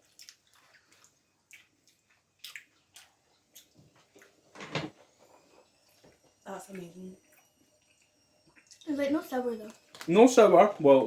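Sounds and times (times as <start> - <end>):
wet chewing and mouth clicks: 0.0 - 4.4, 5.6 - 8.9.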